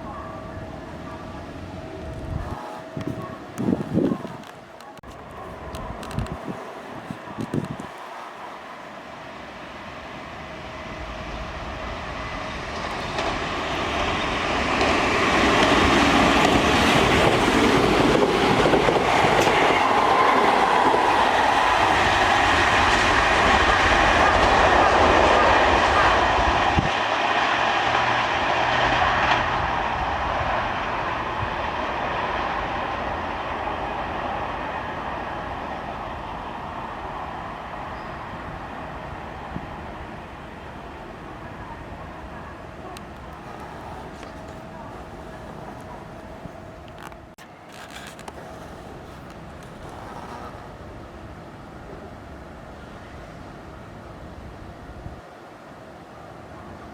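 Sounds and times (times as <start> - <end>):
electric train passing: 0.0 - 56.9
wheels clattering over rail joints: 12.3 - 24.1, 42.8 - 51.3.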